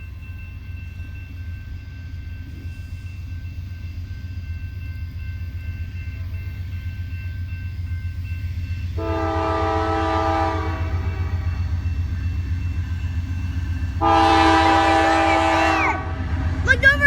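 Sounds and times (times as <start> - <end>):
train rumbling: 0.0 - 17.0
train horn: 9.0 - 11.8, 14.0 - 16.3.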